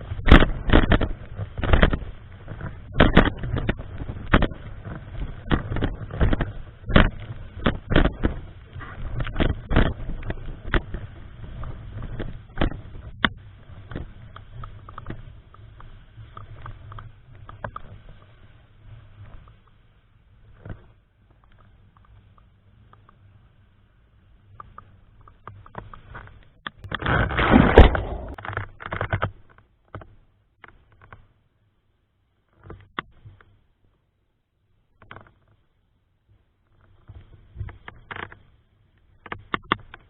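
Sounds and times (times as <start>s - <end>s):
steady low rumble: 26.5s - 28.4s.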